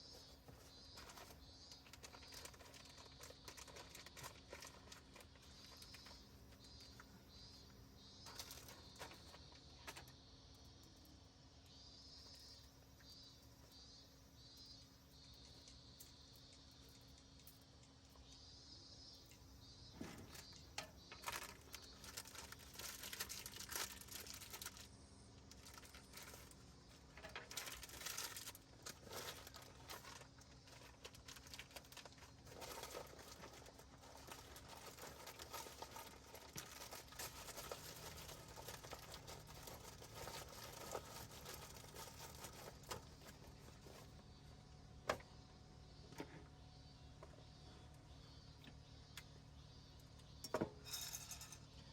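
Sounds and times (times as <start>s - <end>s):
rustling and crinkling: 0.0s - 11.0s, 19.8s - 45.3s.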